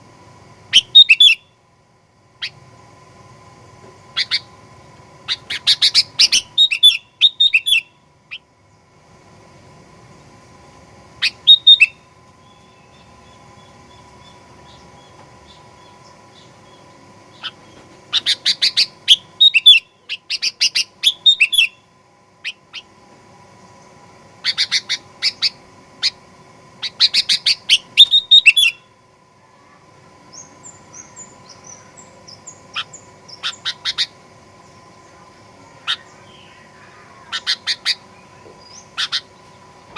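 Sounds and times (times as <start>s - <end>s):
bird chirping in fast clusters: 0.7s - 1.5s, 4.1s - 4.6s, 5.2s - 8.5s, 11.2s - 22.9s, 24.4s - 26.2s, 26.8s - 28.9s, 30.3s - 39.9s.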